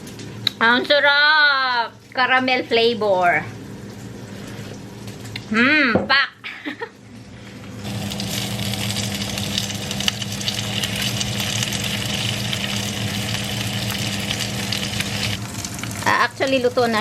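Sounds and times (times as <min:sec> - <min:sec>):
low motor hum: 0:06.8 - 0:17.0
meat sizzling in a pan: 0:07.8 - 0:17.0.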